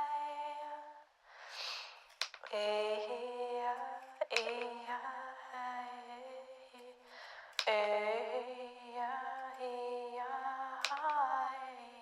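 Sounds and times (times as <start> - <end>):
sharp clicks: 2.1 - 2.7, 4.2 - 4.9, 7.5 - 7.9, 10.8 - 11.3.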